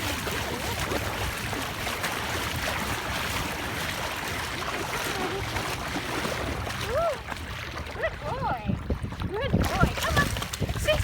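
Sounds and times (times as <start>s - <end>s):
water washing at shore: 0.0s - 11.0s
wind buffeting microphone: 0.0s - 11.0s.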